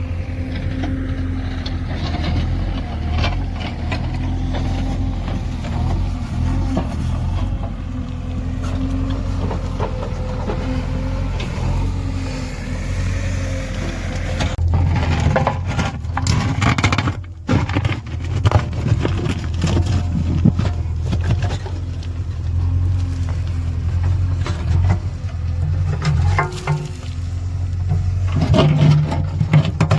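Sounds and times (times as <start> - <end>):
diesel engine running: 0.0 - 29.9
knocks and scraping: 0.0 - 29.9.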